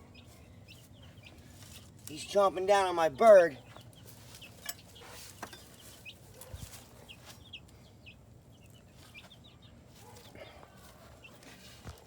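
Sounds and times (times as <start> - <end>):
chickens peeping and clucking: 0.0 - 12.0.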